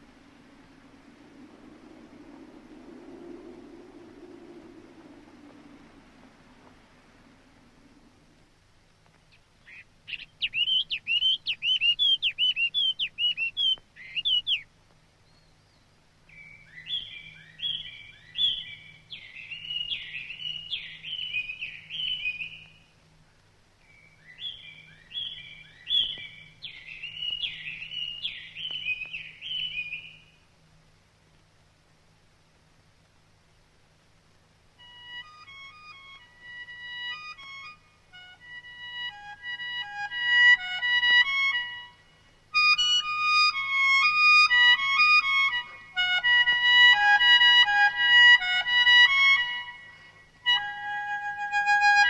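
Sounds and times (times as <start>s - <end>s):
bird singing: 9.3s - 30.5s.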